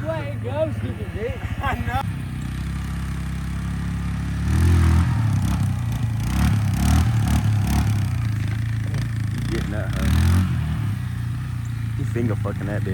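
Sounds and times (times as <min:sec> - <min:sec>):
motorbike engine revving: 0:00.0 - 0:12.9.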